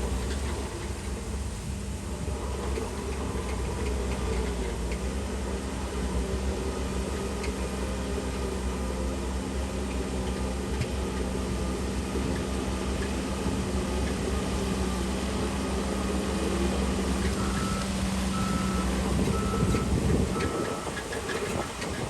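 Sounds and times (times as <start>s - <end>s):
diesel construction machinery running: 0.0s - 22.0s.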